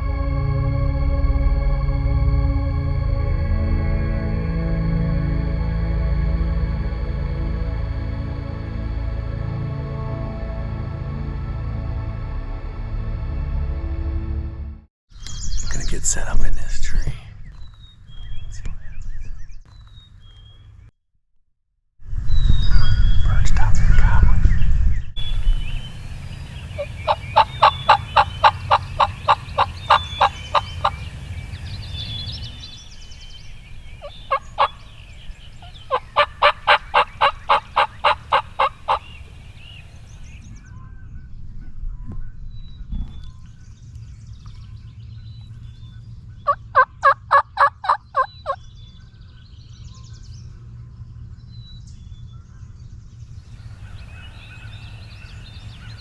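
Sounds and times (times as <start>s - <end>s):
turkey yelping: 25.2s - 40.4s, 46.7s - 48.6s, 53.8s - 56.0s
faint songbirds chirping: 25.2s - 40.6s, 53.3s - 56.0s.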